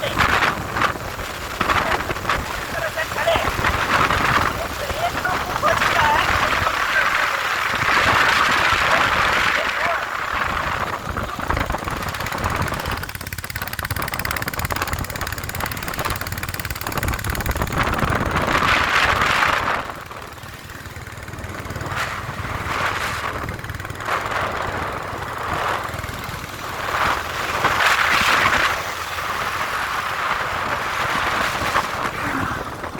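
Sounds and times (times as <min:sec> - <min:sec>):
motorcycle engine running: 0:00.0 - 0:32.9
road and air noise: 0:00.0 - 0:32.9.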